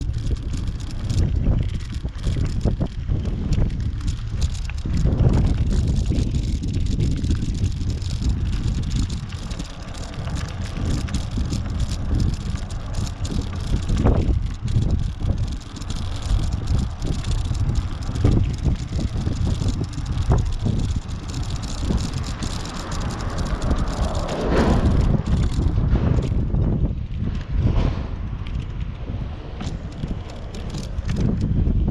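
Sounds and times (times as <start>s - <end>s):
bicycle clicks and rattles: 0.0s - 31.9s
wind buffeting microphone: 0.0s - 31.9s.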